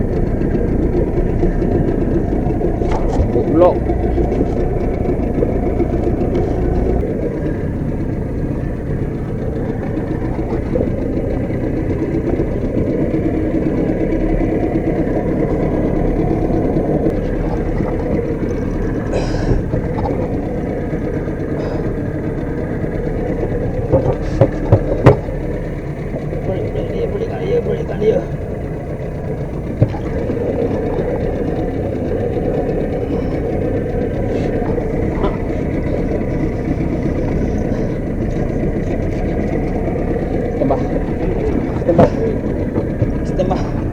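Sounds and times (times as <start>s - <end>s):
boat engine low rumble: 0.0s - 43.9s.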